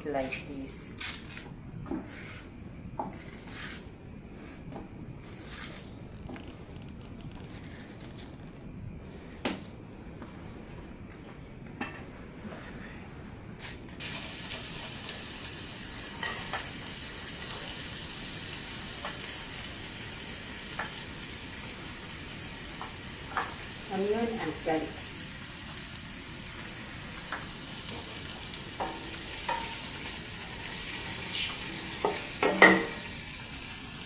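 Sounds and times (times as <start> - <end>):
onion and garlic sizzling in oil: 13.6 - 34.0
kitchen knocks and clicks: 31.6 - 33.0.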